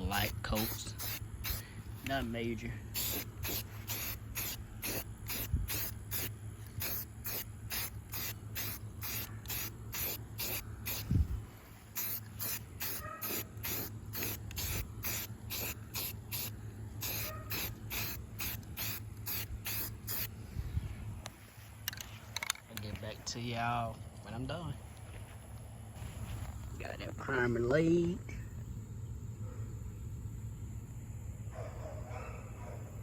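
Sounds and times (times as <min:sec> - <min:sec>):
aerosol can spraying bursts: 0:00.2 - 0:02.3, 0:02.9 - 0:11.2, 0:11.9 - 0:20.3.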